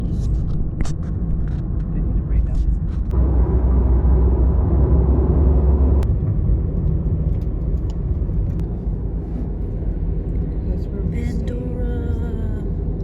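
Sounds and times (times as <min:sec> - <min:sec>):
vehicle rumbling in motion: 0:00.0 - 0:13.0.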